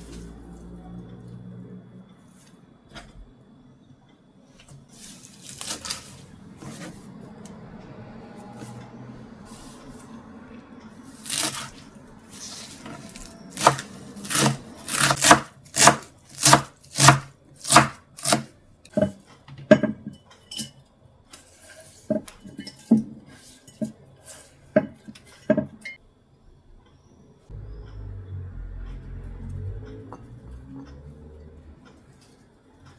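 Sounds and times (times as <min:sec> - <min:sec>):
knife chopping on cutting board: 0:11.1 - 0:20.0.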